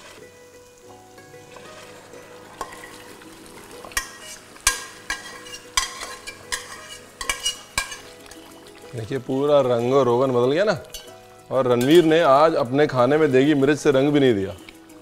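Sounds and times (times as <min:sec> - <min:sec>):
meat frying with light sizzle: 0:00.0 - 0:15.0
spoon knocking against pot: 0:04.0 - 0:08.1.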